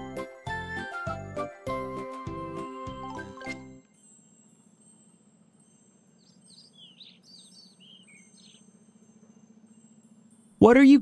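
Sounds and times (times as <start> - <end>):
faint bird chirps: 4.6 - 10.6.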